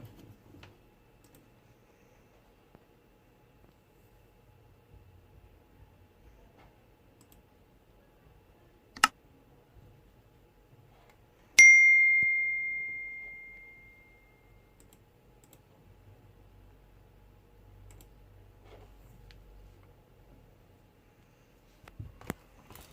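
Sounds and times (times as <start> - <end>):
bell-like ding: 11.6 - 14.6.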